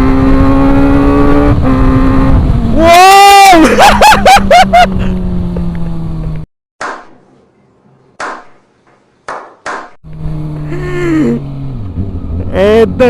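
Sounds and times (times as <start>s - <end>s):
motorcycle engine revving: 0.0s - 2.8s, 4.1s - 6.5s, 10.0s - 13.0s.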